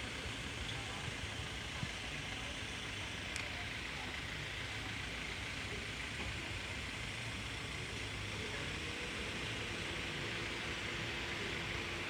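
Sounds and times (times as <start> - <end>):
faint sharp click: 3.3 - 3.5.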